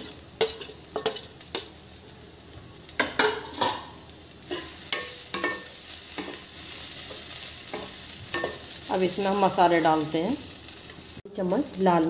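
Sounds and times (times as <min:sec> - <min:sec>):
metal spoon scraping a pan: 0:00.0 - 0:01.8, 0:03.0 - 0:03.9, 0:04.5 - 0:08.8
onions sizzling in hot oil: 0:00.0 - 0:12.0.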